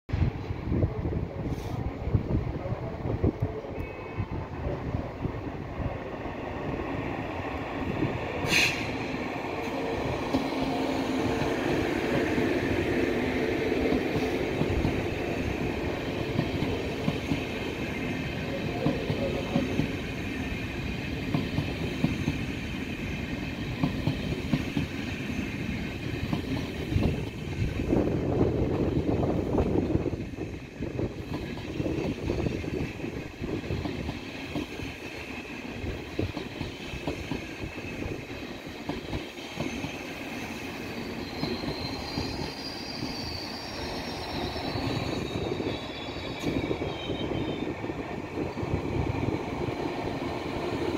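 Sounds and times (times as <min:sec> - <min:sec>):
train wheels rumbling and clacking: 0:04.7 - 0:50.9
faint high squeal: 0:39.6 - 0:47.8.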